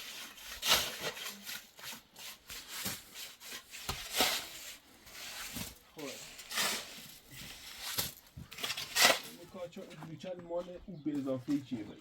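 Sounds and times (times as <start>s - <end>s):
scraping strokes: 0.0s - 9.4s.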